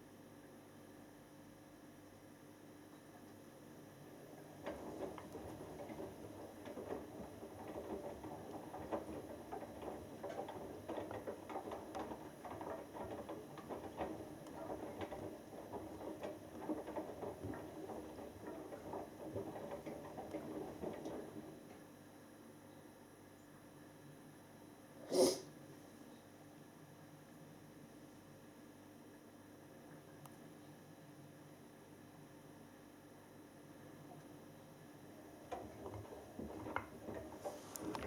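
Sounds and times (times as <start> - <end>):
washing machine drum tumbling: 4.1 - 21.9, 35.0 - 38.0.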